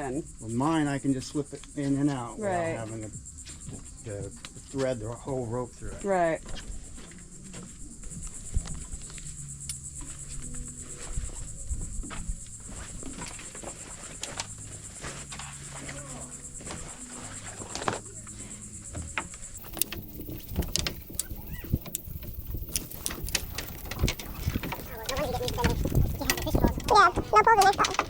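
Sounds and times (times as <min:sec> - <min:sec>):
insects buzzing: 0:00.0 - 0:28.0
knocks and clatter: 0:19.0 - 0:28.0.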